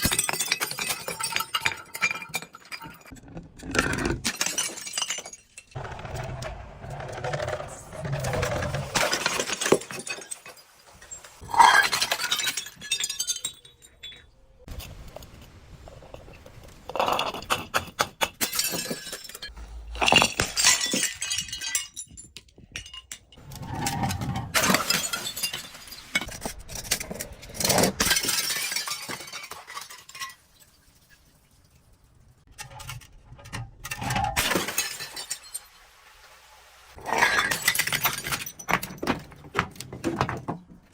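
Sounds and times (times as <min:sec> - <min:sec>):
glass shattering and crunching: 0:00.0 - 0:05.8, 0:07.7 - 0:14.7, 0:16.9 - 0:23.4, 0:24.0 - 0:31.4, 0:33.9 - 0:35.8, 0:37.0 - 0:39.8.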